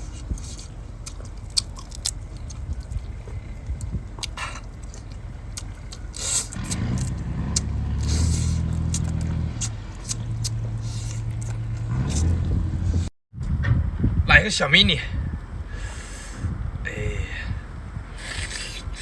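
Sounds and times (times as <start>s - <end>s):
engine droning: 0.0s - 14.2s.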